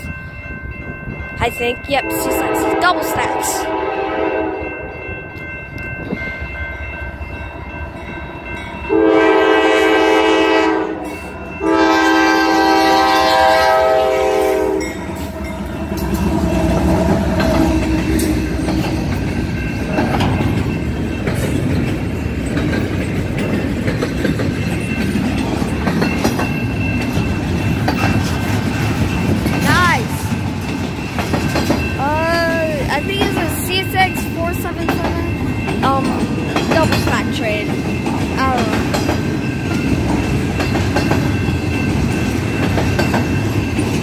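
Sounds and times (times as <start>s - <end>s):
train cars rumbling past: 0.0s - 44.0s
locomotive air horn blasts: 2.0s - 4.6s, 8.9s - 15.0s.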